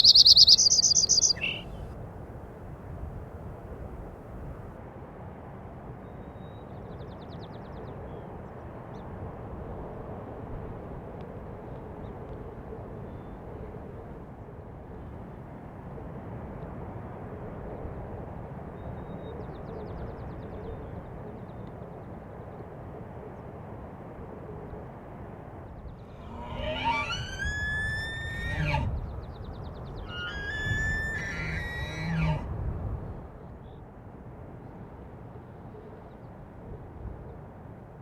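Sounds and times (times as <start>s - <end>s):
elk bugling: 0.0s - 1.9s, 26.1s - 29.1s, 30.0s - 32.5s.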